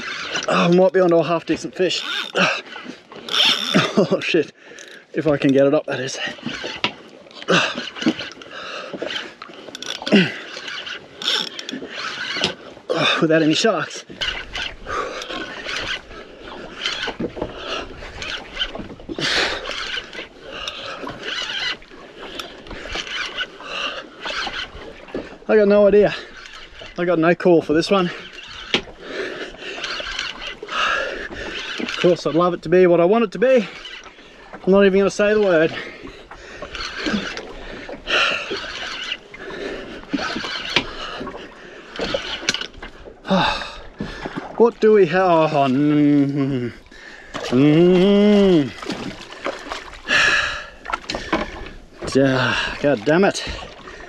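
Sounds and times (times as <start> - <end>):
fishing reel winding: 0.0 - 32.7, 33.6 - 34.3, 36.6 - 41.2, 42.0 - 43.6
water slapping boat hull: 0.0 - 54.0.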